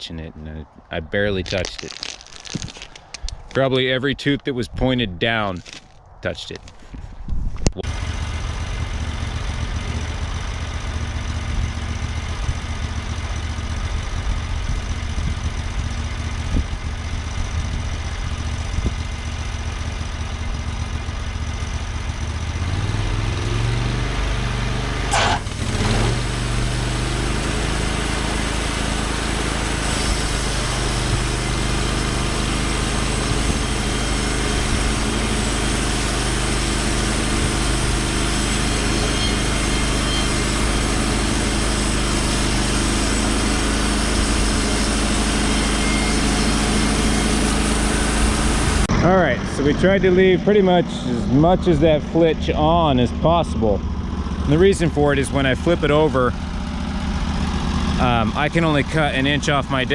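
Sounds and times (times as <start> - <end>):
sawmill engine running: 7.7 - 59.9
brief squeal: 38.7 - 40.6, 45.4 - 47.4.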